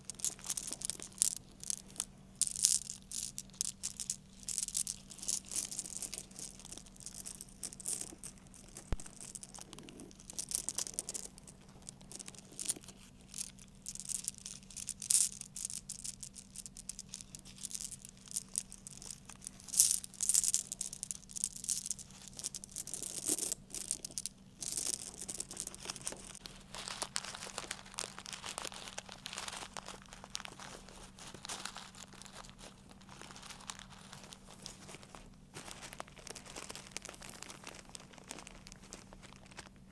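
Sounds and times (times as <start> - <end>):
crinkling rustle: 0.0 - 39.8
rattling clicks of small objects: 0.0 - 39.8
faint electrical hum: 0.0 - 39.9.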